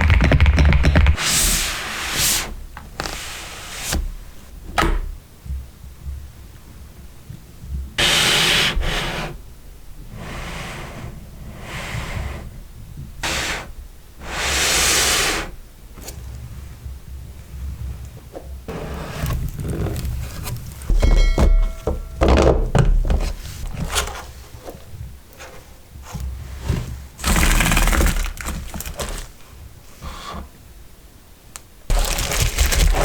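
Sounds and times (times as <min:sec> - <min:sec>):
packaging rubbing and sliding: 0:18.7 - 0:20.9, 0:27.1 - 0:30.4, 0:31.9 - 0:33.0.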